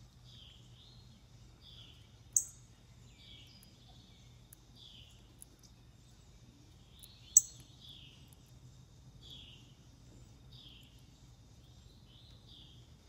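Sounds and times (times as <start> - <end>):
sharp high bird chip notes: 7.3 - 7.6.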